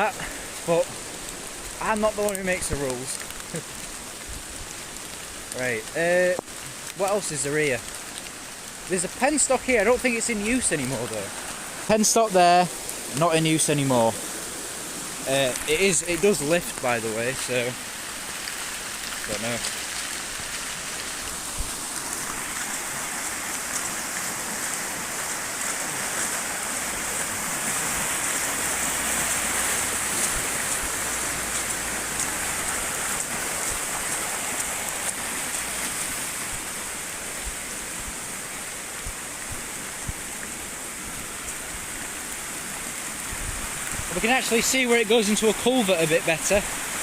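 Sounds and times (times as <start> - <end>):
raindrops ticking on camera: 0.0 - 14.5, 15.2 - 47.0
floodwater rushing: 0.0 - 47.0
heavy rain: 0.0 - 47.0.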